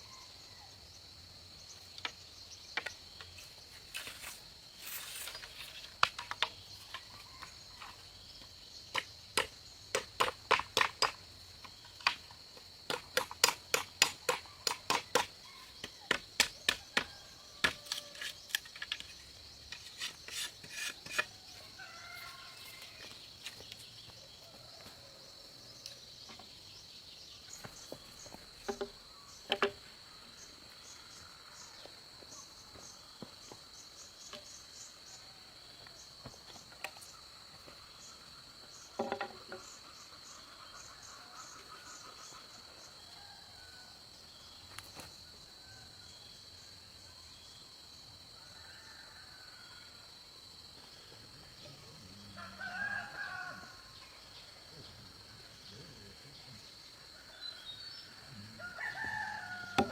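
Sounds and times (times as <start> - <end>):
cricket chorus: 0.0 - 59.9
tool strikes on timber: 8.9 - 11.2, 12.9 - 19.1, 28.3 - 29.8, 39.0 - 39.6.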